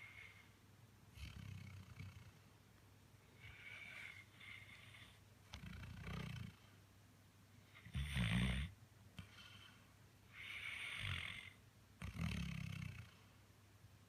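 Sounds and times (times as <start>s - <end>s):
dog snoring: 1.1s - 2.4s, 3.4s - 6.7s, 7.8s - 9.7s, 10.3s - 13.2s.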